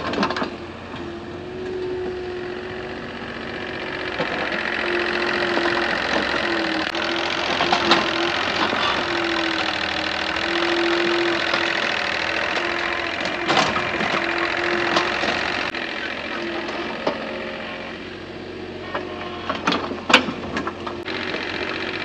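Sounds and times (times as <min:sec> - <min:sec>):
engine with rhythmic clatter: 0:00.0 - 0:22.0.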